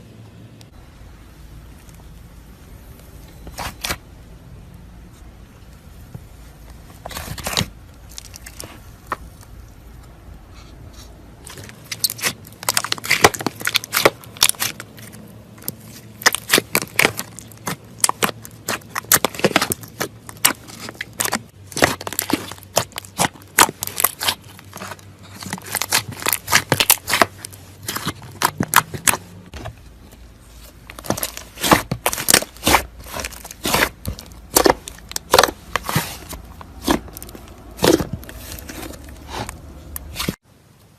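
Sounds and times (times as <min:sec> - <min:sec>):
slime clicking and crackling: 0:05.8 - 0:10.0, 0:11.0 - 0:40.4.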